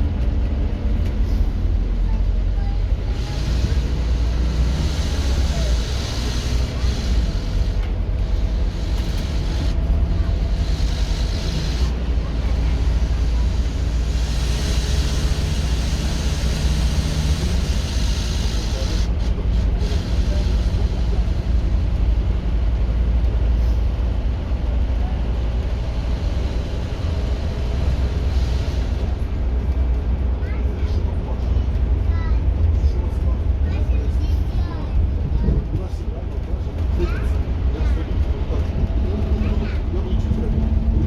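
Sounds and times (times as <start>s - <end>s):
bus diesel engine droning: 0.0s - 41.0s.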